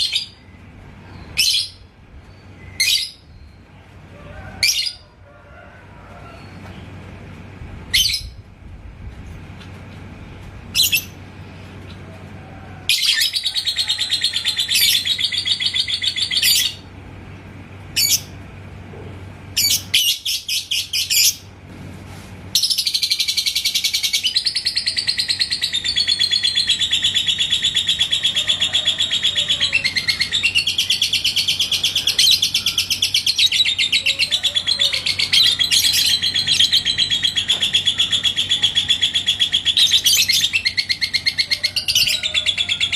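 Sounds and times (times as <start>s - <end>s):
lovebird chirping and trilling: 1.1s - 3.6s, 7.9s - 8.4s, 10.7s - 11.2s, 12.9s - 16.8s, 18.0s - 18.4s, 19.6s - 21.5s, 22.6s - 42.9s.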